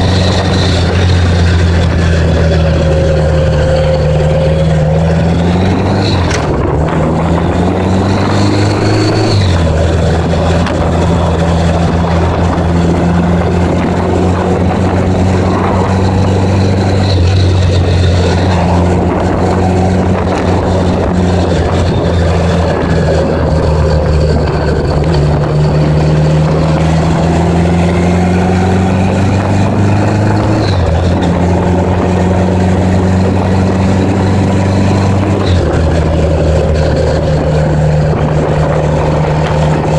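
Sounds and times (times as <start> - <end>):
motorcycle engine shifting gears: 0.0 - 39.9
steady rush of noise: 0.0 - 39.9.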